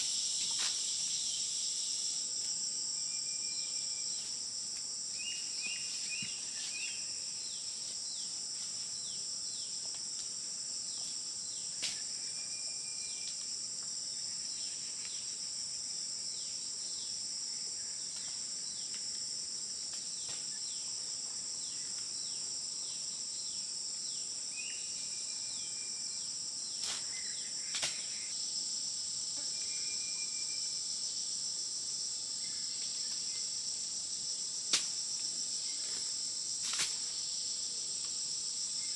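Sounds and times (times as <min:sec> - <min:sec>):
insect chorus: 0:00.0 - 0:38.9.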